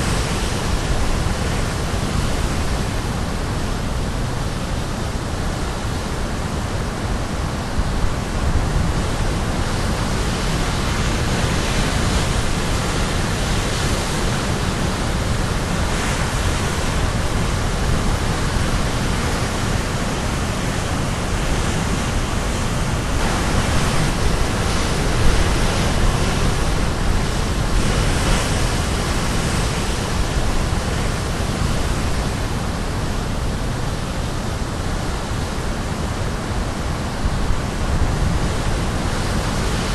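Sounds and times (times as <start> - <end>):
waves crashing on shore: 0.0 - 39.9.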